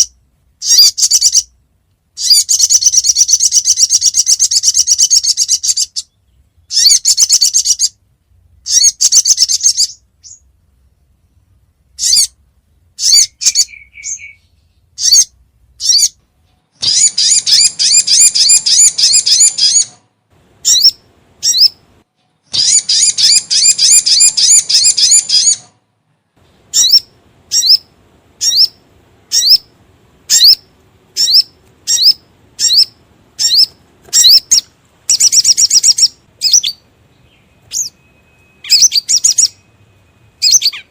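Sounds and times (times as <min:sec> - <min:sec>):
bird high fast trills: 0:00.0 - 0:01.5, 0:02.2 - 0:08.0, 0:13.0 - 0:16.2, 0:16.8 - 0:20.0, 0:20.6 - 0:21.8, 0:22.5 - 0:25.8, 0:26.7 - 0:40.9.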